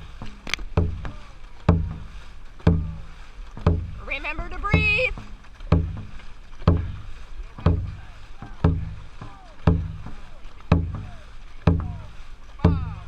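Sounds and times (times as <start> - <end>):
drum struck in steady beat: 0.0 - 13.0.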